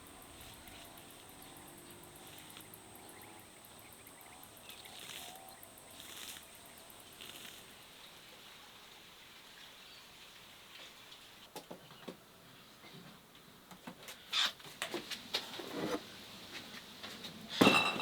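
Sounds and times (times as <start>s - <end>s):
insect chirring: 0.0s - 8.0s
rustles: 0.0s - 18.0s.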